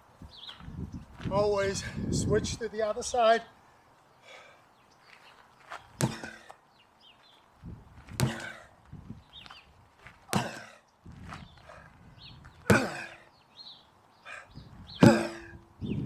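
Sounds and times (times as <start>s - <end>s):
sledgehammer strikes ringing: 15.0s - 15.8s.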